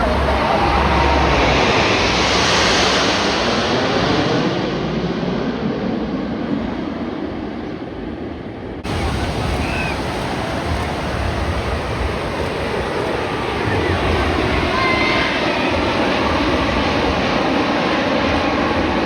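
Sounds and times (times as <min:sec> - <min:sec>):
surf: 0:00.0 - 0:04.2, 0:08.8 - 0:19.0
wind: 0:00.0 - 0:19.0.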